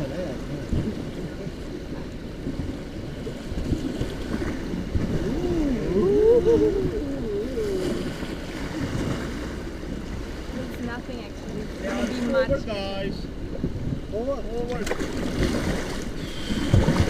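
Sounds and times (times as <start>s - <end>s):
river water rushing: 0.0s - 13.5s, 14.9s - 17.0s
voice calling in gliding tones: 5.0s - 8.4s
wind buffeting microphone: 12.3s - 17.0s.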